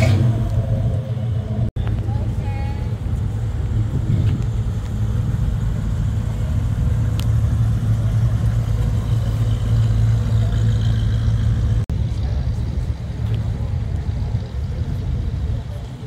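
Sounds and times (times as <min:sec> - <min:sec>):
car engine rumbling past: 0:00.0 - 0:16.0.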